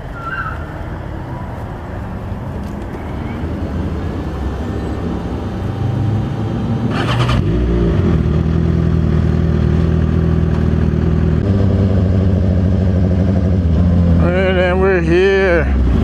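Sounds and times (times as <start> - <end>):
motorcycle engine running: 6.2 - 14.5.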